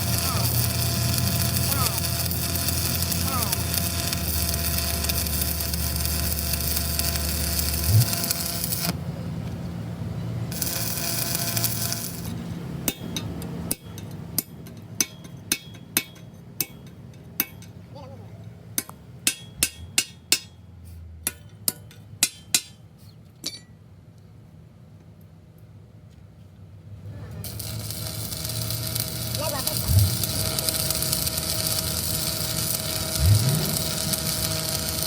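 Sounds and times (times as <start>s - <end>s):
hammer striking metal: 12.8s - 17.8s, 18.8s - 22.8s
hiss of noise: 27.8s - 35.0s.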